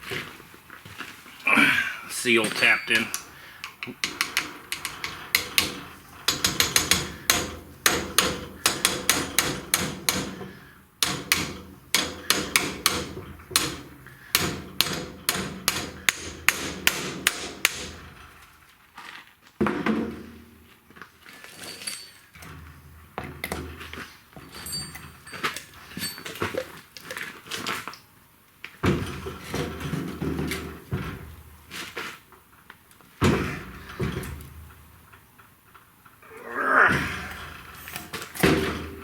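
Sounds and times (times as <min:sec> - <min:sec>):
hammer tapping metal: 0:02.4 - 0:10.4, 0:11.0 - 0:18.0.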